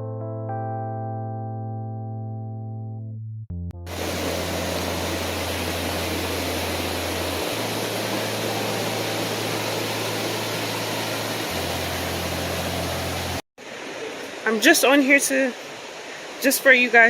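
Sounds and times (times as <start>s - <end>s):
piano music: 0.0s - 13.4s
low hum: 3.7s - 13.4s
waterfall roaring: 3.9s - 17.0s.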